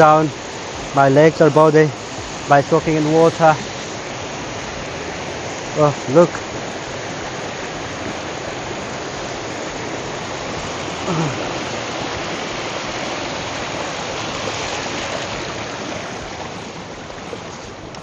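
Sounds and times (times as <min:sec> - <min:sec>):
stream water flowing: 0:00.0 - 0:18.0
person's short vocal sound: 0:10.6 - 0:11.7.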